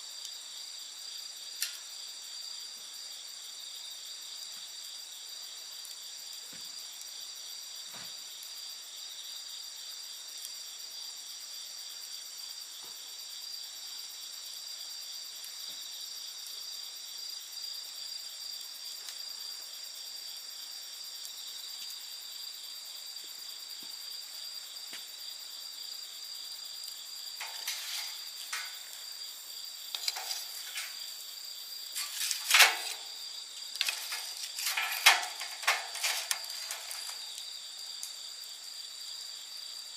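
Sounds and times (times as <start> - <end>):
insects trilling: 0.0 - 39.9
campfire crackling and popping: 0.2 - 2.2, 18.2 - 38.6.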